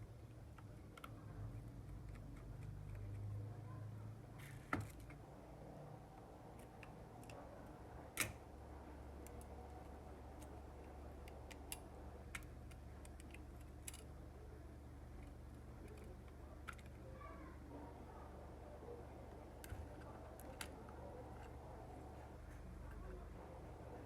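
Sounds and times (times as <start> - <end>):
low steady hum: 0.0 - 24.0
clicks and taps of small parts: 8.2 - 8.4, 10.4 - 14.1, 15.2 - 17.0.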